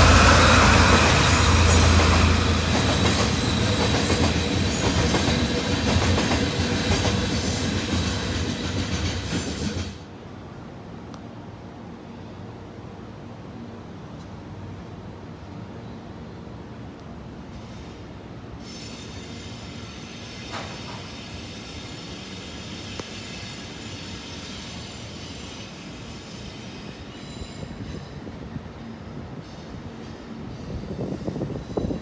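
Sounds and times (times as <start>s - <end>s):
high-pitched whine: 0.0s - 3.8s
freight train rumbling on rails: 0.0s - 12.0s, 12.6s - 32.0s.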